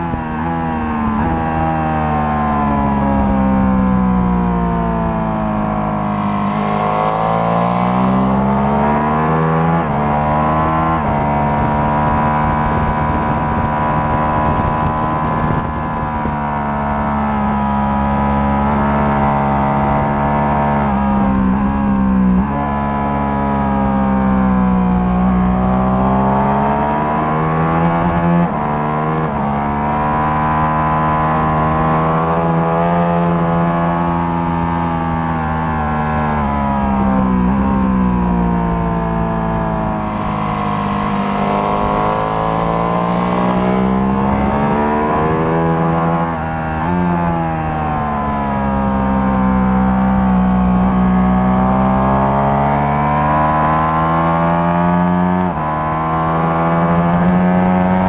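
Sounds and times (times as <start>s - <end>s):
motorcycle engine revving: 0.0s - 58.0s
wind rush: 10.7s - 16.7s.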